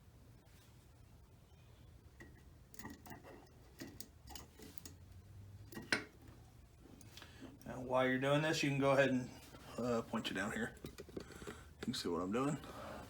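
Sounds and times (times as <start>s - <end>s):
metal parts clicking and tapping: 2.2s - 5.0s.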